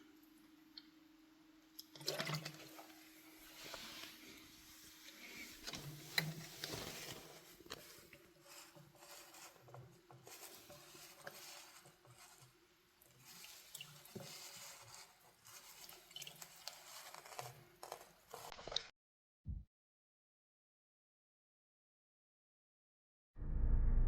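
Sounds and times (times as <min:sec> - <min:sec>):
water trickling into soil: 0:01.8 - 0:18.8.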